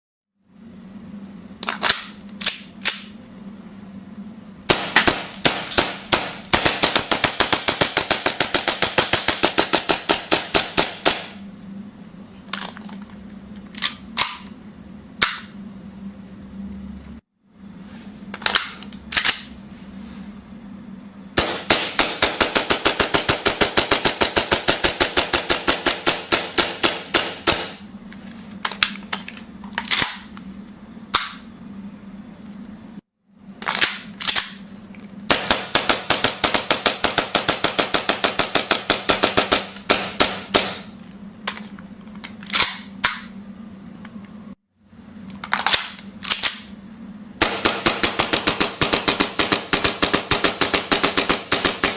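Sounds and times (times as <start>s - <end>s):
airsoft pistol firing: 4.7s - 11.4s, 21.4s - 27.8s, 35.3s - 40.9s, 47.4s - 51.9s.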